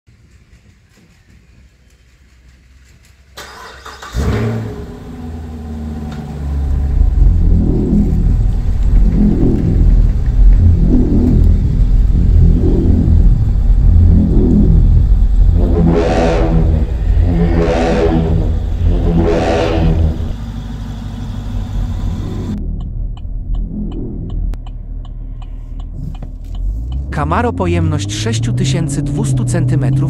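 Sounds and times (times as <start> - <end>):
car engine starting: 0.4 - 30.0
deep loud engine idle: 5.1 - 23.1.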